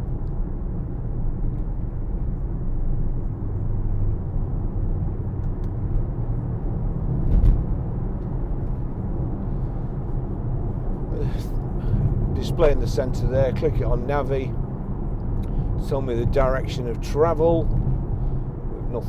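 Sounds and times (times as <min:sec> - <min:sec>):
car engine low rumble: 0:00.0 - 0:19.0
thump: 0:07.3 - 0:07.6.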